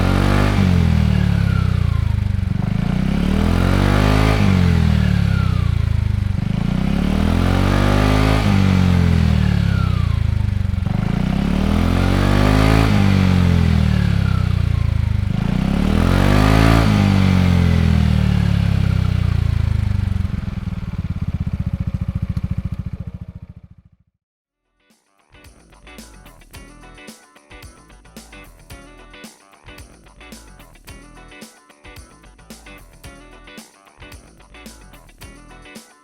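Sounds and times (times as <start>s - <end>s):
scooter engine revving and idling: 0.0s - 24.0s.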